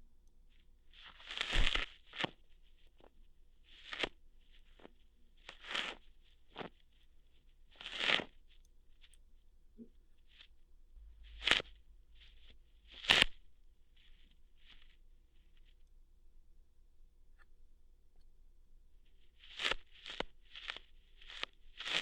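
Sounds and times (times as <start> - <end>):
hair plucking scratchy pulls: 1.0 - 3.1, 3.7 - 6.8, 7.7 - 8.4, 11.2 - 15.0, 19.3 - 22.0.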